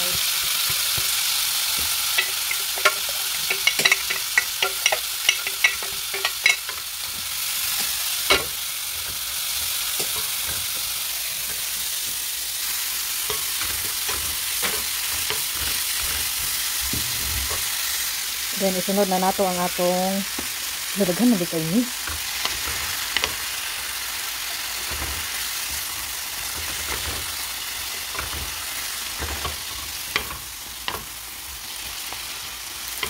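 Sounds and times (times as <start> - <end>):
food sizzling in a skillet: 0.0 - 33.0
utensils knocking against pan: 0.4 - 12.2, 13.3 - 17.6, 22.0 - 23.6, 24.7 - 31.2.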